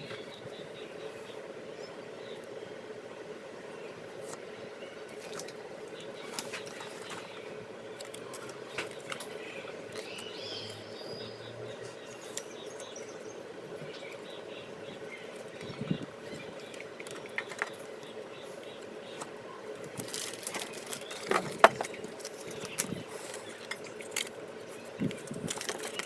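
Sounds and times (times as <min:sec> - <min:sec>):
trading cards clicking and rustling: 0:19.9 - 0:26.0.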